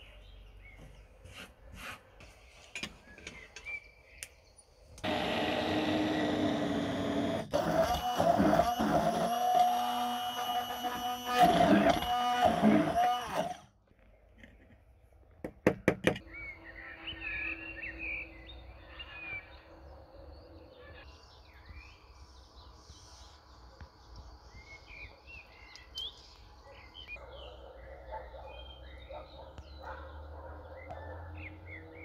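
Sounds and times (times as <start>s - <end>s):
small birds chirping: 0.0s - 1.5s, 2.3s - 5.1s, 20.4s - 32.0s
motor cutting off: 5.0s - 13.6s.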